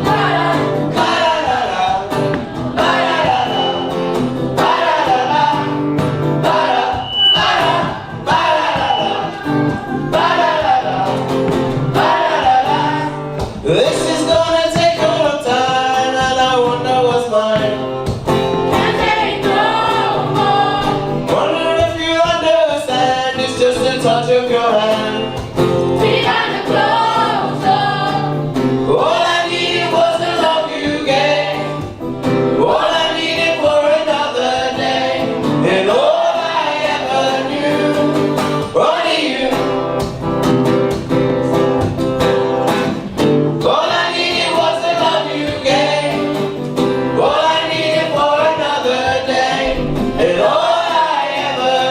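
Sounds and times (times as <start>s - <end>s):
choir singing: 0.0s - 13.4s, 18.7s - 21.8s, 25.9s - 32.0s, 32.6s - 39.8s, 43.6s - 51.9s.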